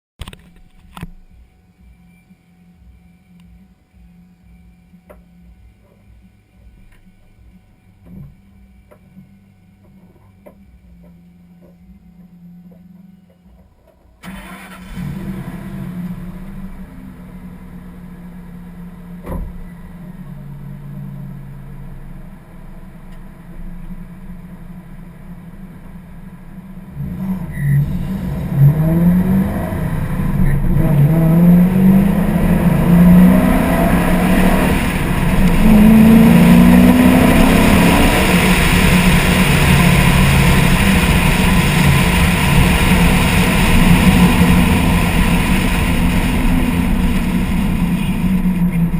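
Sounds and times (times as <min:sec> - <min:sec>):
car engine accelerating: 0:01.8 - 0:48.9.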